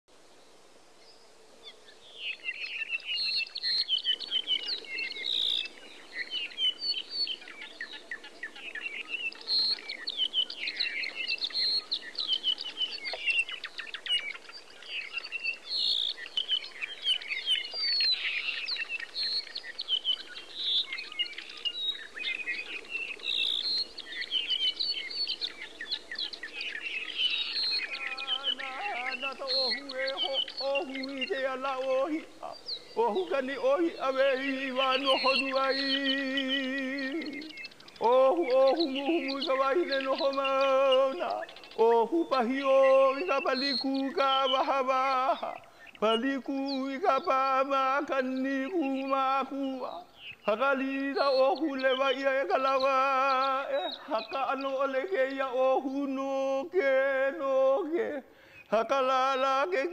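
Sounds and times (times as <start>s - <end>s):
many birds chirping and whistling: 1.0s - 59.9s.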